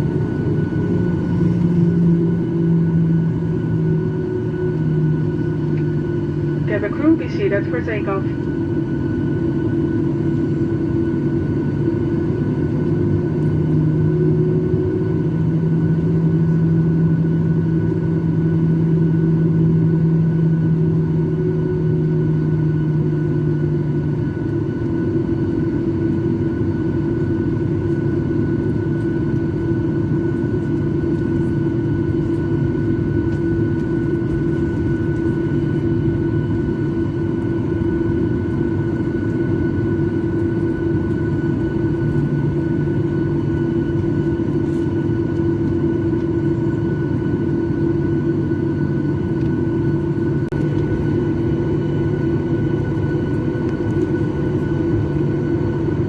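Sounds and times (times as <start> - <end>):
low hum: 0.0 - 10.8
jet engines rumbling in cabin: 0.0 - 56.0.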